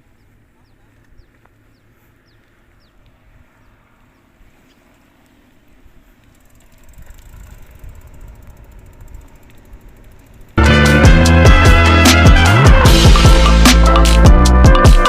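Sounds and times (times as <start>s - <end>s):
wind rumbling on microphone: 5.6s - 10.6s.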